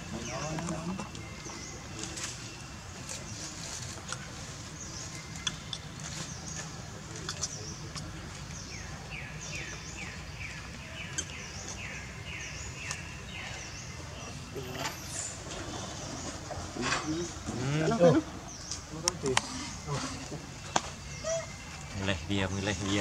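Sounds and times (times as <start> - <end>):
birds chirping: 0.0 - 23.0
downward-sliding bird calls: 19.2 - 20.5.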